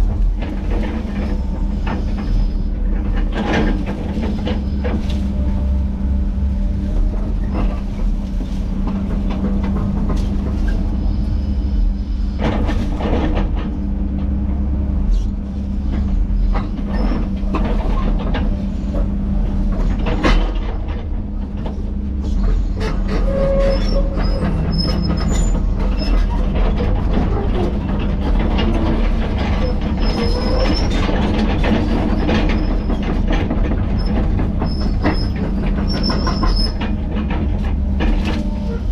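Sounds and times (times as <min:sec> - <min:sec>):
diesel engine running: 0:00.0 - 0:38.9
metal clanks and knocks: 0:15.8 - 0:38.9
short metallic squeals: 0:22.6 - 0:26.5, 0:33.9 - 0:36.9.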